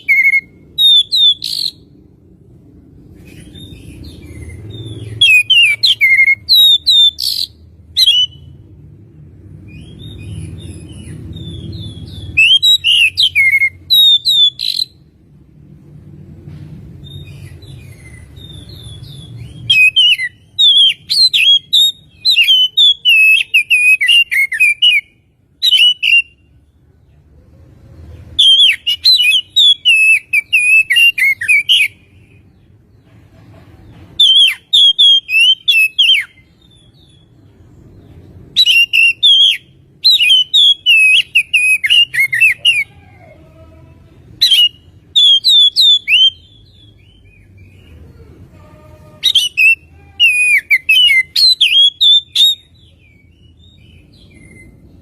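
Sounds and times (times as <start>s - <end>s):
bird singing chirps and whistles: 0.0s - 1.8s, 3.3s - 8.5s, 9.7s - 15.0s, 17.0s - 26.5s, 28.4s - 32.3s, 34.2s - 37.4s, 38.0s - 42.9s, 44.4s - 47.8s, 49.2s - 54.9s.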